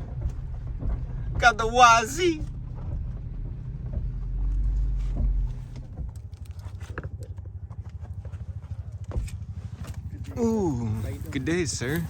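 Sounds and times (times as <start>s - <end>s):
engine idling: 0.0s - 12.0s
heavy low rumble: 0.0s - 12.0s.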